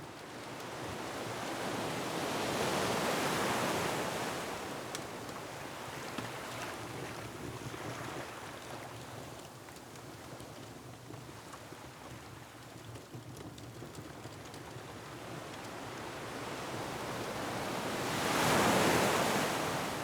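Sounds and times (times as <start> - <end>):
ocean waves and surf: 17.4 - 20.0.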